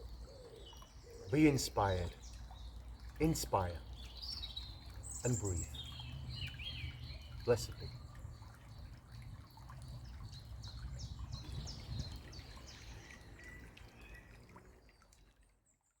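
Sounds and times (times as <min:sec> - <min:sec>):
birds chirping: 0:00.0 - 0:08.9
brook water trickling: 0:00.0 - 0:16.0.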